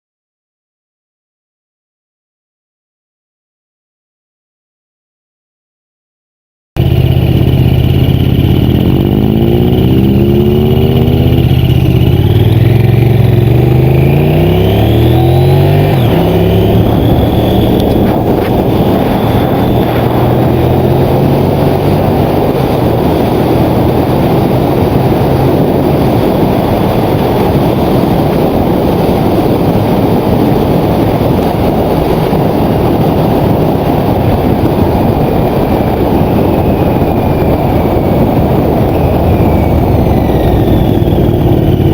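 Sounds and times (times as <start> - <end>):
motorcycle engine accelerating: 6.8 - 41.9
wind rush: 6.9 - 41.9.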